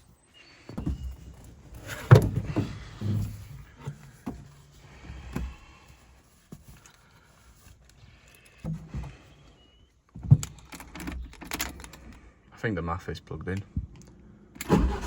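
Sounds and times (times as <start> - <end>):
car parts knocking and clunking: 0.6 - 6.7, 10.1 - 12.1.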